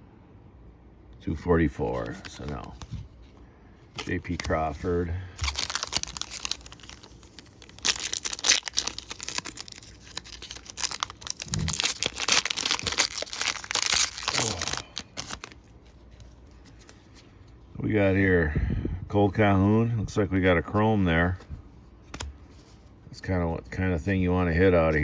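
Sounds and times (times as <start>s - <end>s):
foil wrapper tearing and crinkling: 4.0s - 15.9s.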